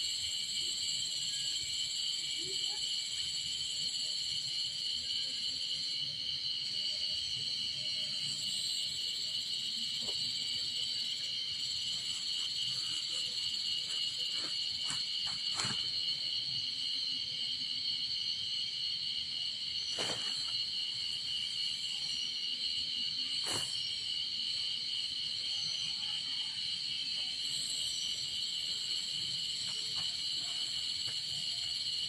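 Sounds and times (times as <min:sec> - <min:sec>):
insects shrilling: 0:06.5 - 0:25.4.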